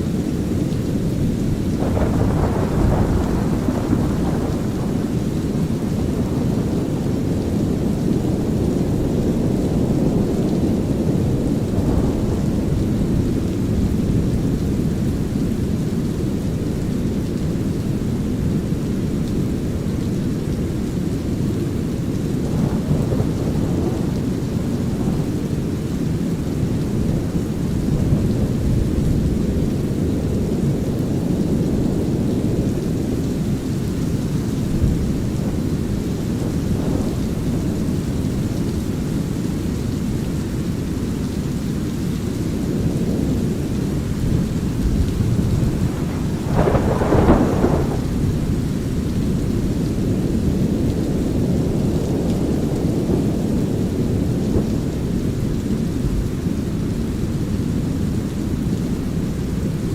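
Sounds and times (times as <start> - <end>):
light rain: 0.0 - 59.9
low rolling thunder: 0.1 - 19.8, 20.4 - 58.8
thunder crack: 1.8 - 5.7, 44.1 - 49.8.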